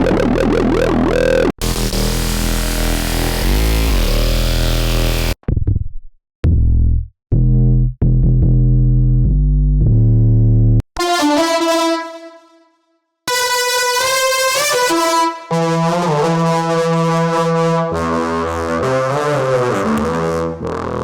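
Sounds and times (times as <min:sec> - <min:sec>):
noisy wobbling synth bass: 0:00.0 - 0:05.4
short deep bass notes: 0:00.0 - 0:05.8, 0:06.4 - 0:10.8.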